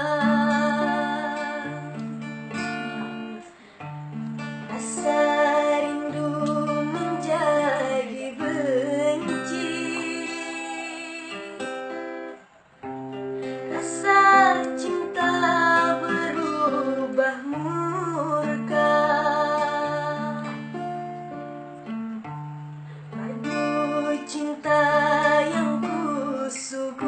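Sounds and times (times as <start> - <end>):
woman singing: 0.0 - 2.0, 4.6 - 11.8, 13.6 - 20.8, 23.1 - 27.0
acoustic guitar chords: 0.0 - 27.0.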